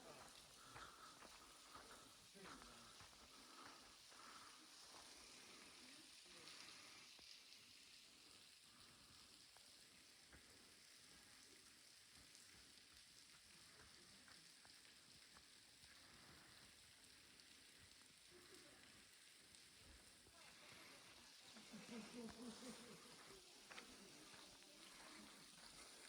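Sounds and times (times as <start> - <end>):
faint steady hiss: 0.0 - 26.0
small crackles: 0.0 - 26.0.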